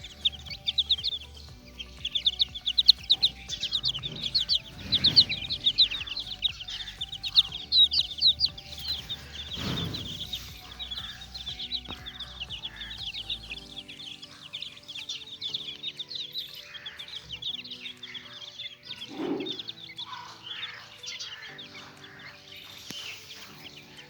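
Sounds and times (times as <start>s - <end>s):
background music with held notes: 0.0s - 24.0s
chicks peeping: 0.0s - 24.0s.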